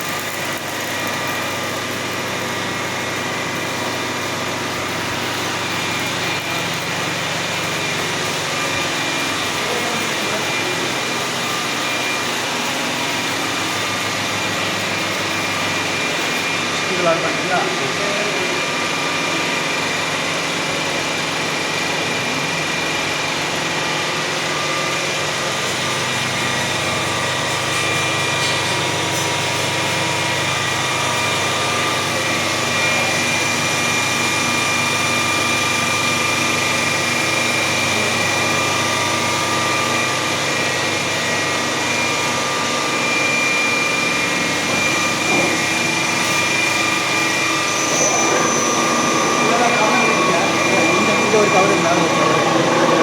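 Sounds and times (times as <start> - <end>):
boring machine humming: 0.0 - 53.0
thin high whine: 41.0 - 53.0.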